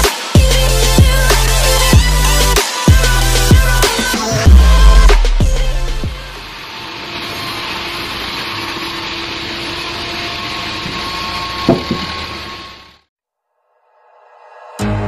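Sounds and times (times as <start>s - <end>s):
bandsaw cutting through log: 0.0s - 13.1s.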